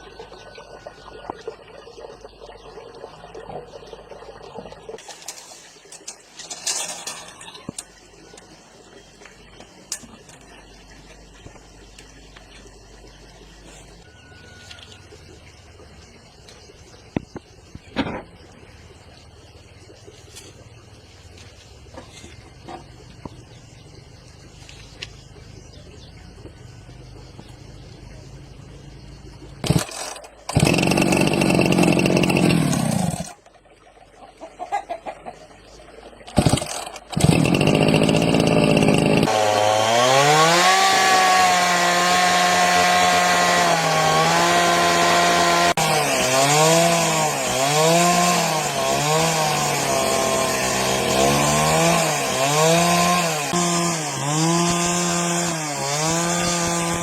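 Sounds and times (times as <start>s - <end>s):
chainsaw engine running: 29.6s - 33.4s, 36.4s - 57.0s.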